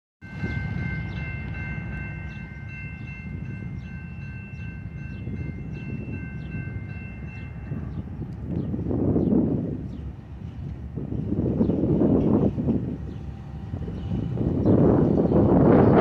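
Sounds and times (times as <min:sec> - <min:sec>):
diesel train rumbling: 0:00.2 - 0:16.0.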